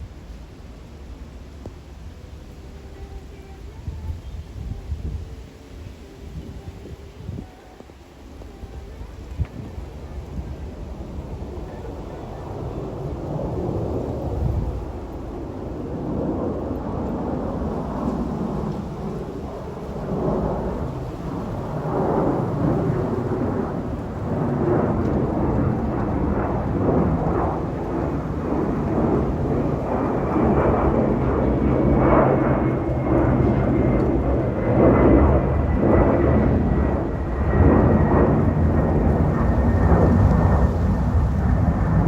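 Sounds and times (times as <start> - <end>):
jet airliner engine rumble: 0.0 - 42.0.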